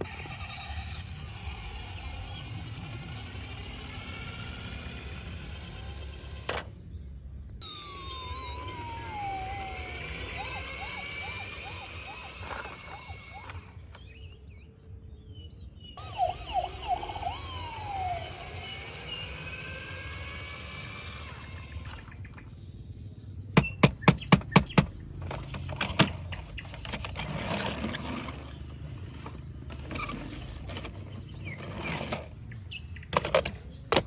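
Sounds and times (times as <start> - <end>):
wailing siren-like tones: 7.6 - 14.4, 16.0 - 22.2.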